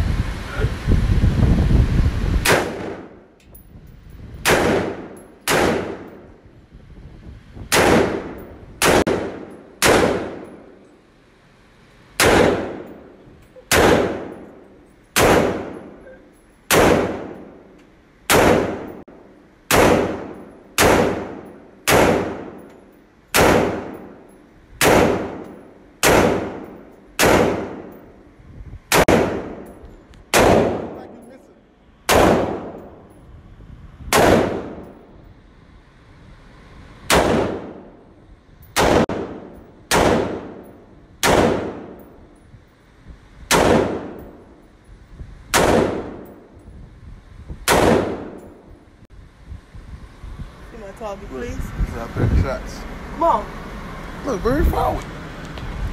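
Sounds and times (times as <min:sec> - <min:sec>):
rifle shots with echo: 0:02.4 - 0:03.3, 0:04.4 - 0:06.3, 0:07.7 - 0:10.8, 0:12.2 - 0:13.1, 0:13.7 - 0:14.6, 0:15.2 - 0:16.0, 0:16.7 - 0:17.7, 0:18.3 - 0:19.0, 0:19.7 - 0:22.7, 0:23.3 - 0:24.2, 0:24.8 - 0:28.0, 0:28.9 - 0:29.7, 0:30.3 - 0:31.2, 0:32.1 - 0:33.0, 0:34.1 - 0:35.1, 0:37.1 - 0:38.0, 0:38.8 - 0:42.2, 0:43.5 - 0:44.6, 0:45.5 - 0:46.5, 0:47.7 - 0:48.6.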